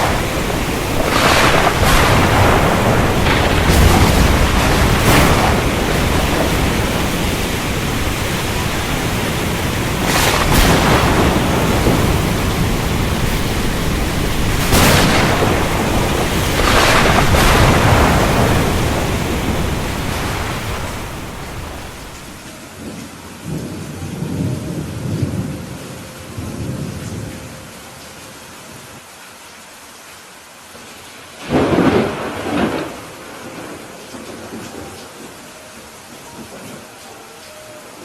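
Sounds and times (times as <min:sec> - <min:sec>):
thunder cracks: 0:00.0 - 0:22.5, 0:31.4 - 0:34.7
low thunder rumbles: 0:00.0 - 0:27.6, 0:31.4 - 0:34.8
heavy rain: 0:00.0 - 0:38.0.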